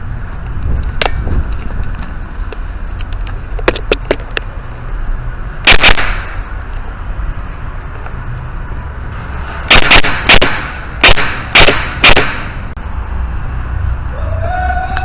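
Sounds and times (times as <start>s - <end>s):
airsoft gun shots: 5.6s - 6.5s, 9.7s - 12.7s.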